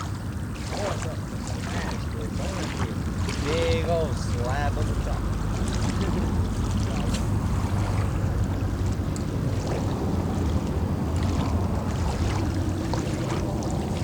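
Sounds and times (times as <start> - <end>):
water rushing: 0.0 - 14.0
wind buffeting microphone: 0.0 - 14.0.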